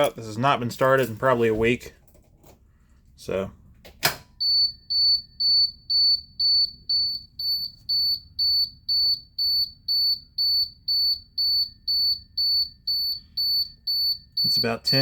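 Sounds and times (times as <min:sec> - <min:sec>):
warning buzzer beeping: 0:04.4 - 0:15.0.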